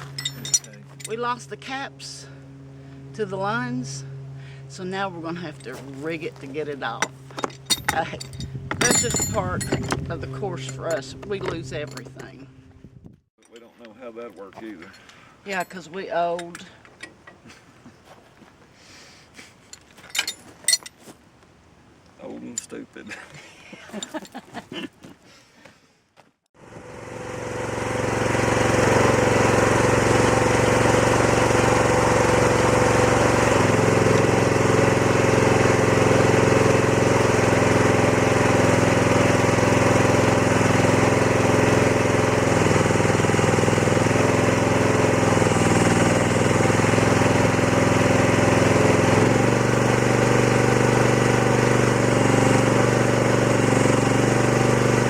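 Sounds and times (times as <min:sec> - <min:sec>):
excavator engine running: 0:00.0 - 0:13.0, 0:26.6 - 0:55.0.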